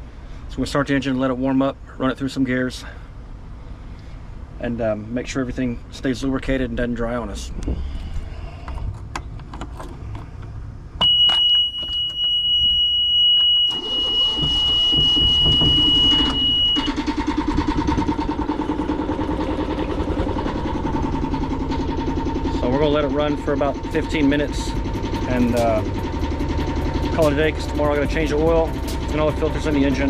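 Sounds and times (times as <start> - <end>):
high warning buzzer: 11.0 - 17.0
boat engine idling: 13.6 - 30.0
starter cranking boat engine: 13.6 - 30.0.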